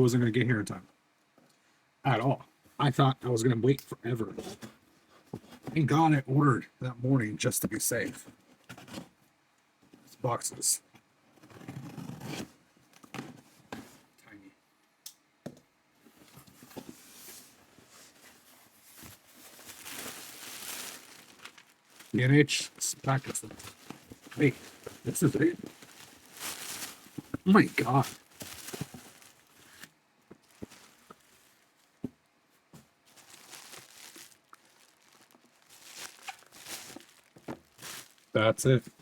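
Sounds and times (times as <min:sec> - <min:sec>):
packaging rustling: 0:16.9 - 0:32.1, 0:33.0 - 0:38.4
packaging crinkling and tearing: 0:18.9 - 0:31.8, 0:33.1 - 0:38.4.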